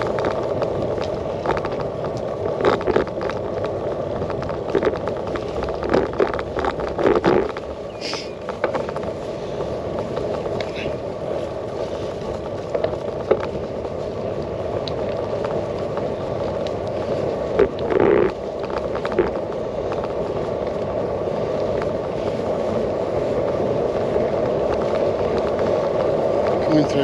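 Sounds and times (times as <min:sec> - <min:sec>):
bicycle tyre noise: 0:00.0 - 0:27.0
bike rattles and clicks: 0:00.0 - 0:27.0
wind rush: 0:00.0 - 0:27.0.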